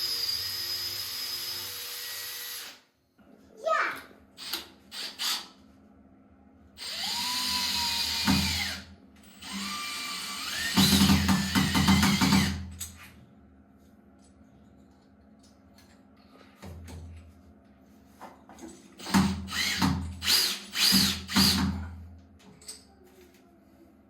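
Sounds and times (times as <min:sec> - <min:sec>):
power drill whine: 0:00.0 - 0:02.8, 0:04.4 - 0:05.5, 0:06.8 - 0:12.6, 0:19.0 - 0:21.7.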